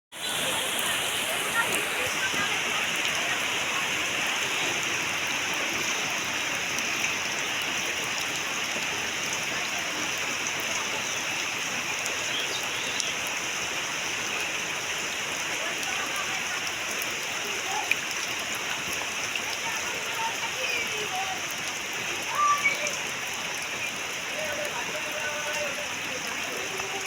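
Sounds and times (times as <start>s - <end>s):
heavy rain hiss: 0.2s - 27.0s
rain drop taps: 1.6s - 3.5s, 10.1s - 13.4s, 15.7s - 23.1s, 24.4s - 27.0s.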